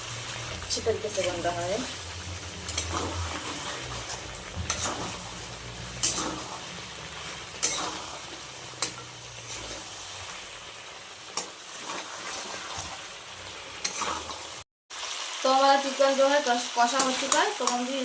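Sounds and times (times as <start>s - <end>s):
chicken sizzling in a pan: 0.0s - 18.0s
spatula scraping a pan: 2.6s - 10.4s, 11.2s - 13.1s, 13.8s - 14.6s.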